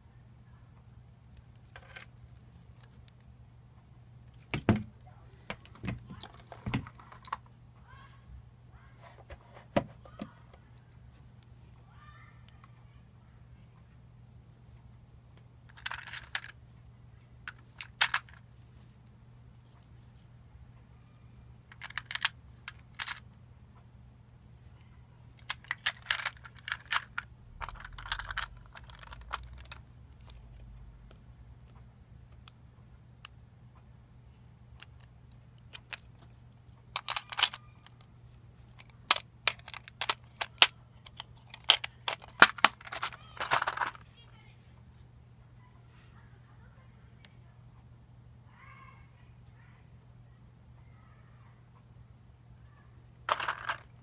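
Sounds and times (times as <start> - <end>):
faint low hum: 0.0 - 54.0
small hard parts clinking: 15.7 - 20.3, 21.0 - 23.2, 25.4 - 30.7, 35.7 - 38.1, 38.7 - 44.0, 53.3 - 54.0.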